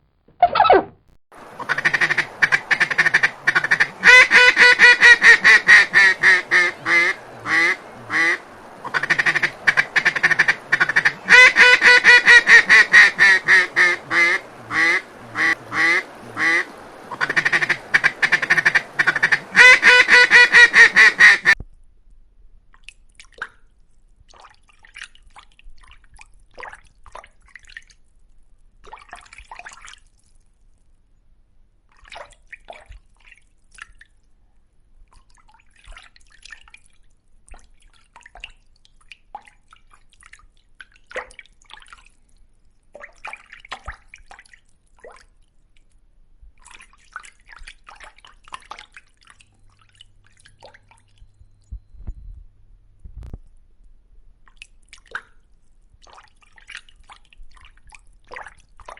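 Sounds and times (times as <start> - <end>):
duck quacking: 1.6 - 21.6.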